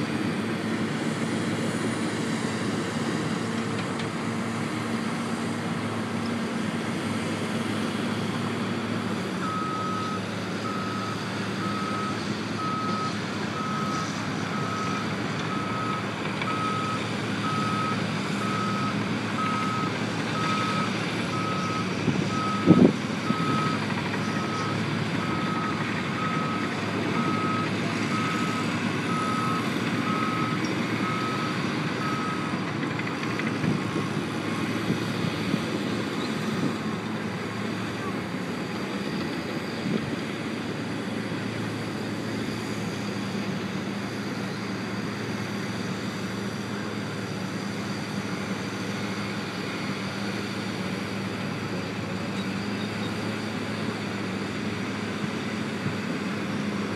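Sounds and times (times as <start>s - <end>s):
reversing alarm beeping: 9.4s - 32.6s.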